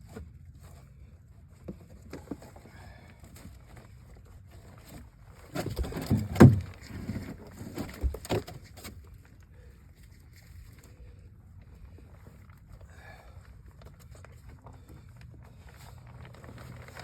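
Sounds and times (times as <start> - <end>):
knocks and thumps in a boat: 4.8 - 9.1.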